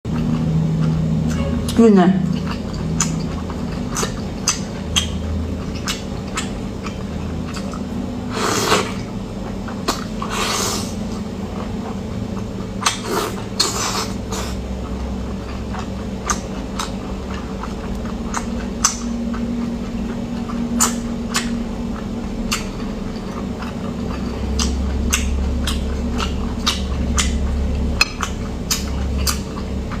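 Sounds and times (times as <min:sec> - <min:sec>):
steady low hum: 0:00.0 - 0:30.0
person chewing: 0:00.1 - 0:30.0
mouth and food clicks: 0:02.4 - 0:08.0, 0:14.4 - 0:30.0.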